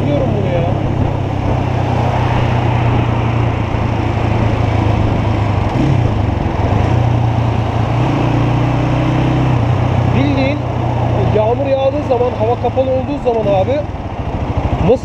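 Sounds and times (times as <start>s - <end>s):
wind rushing over microphone: 0.0s - 11.9s
motorcycle engine running: 0.0s - 15.0s.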